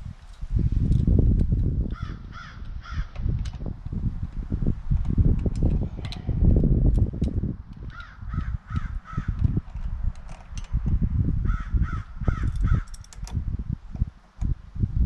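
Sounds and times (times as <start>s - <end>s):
crow cawing: 1.9s - 3.2s, 7.9s - 9.4s, 11.5s - 12.9s.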